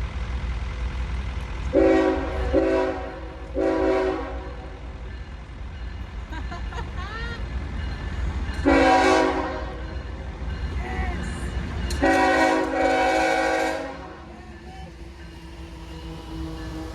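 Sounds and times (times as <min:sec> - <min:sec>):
train air horn blasts: 0:01.7 - 0:04.8, 0:08.6 - 0:09.9, 0:11.9 - 0:14.9.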